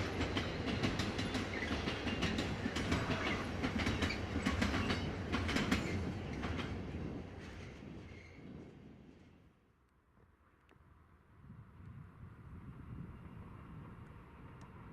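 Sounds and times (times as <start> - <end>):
train wheels clicking over rail joints: 0.0 - 6.8
train rumble: 0.0 - 9.6.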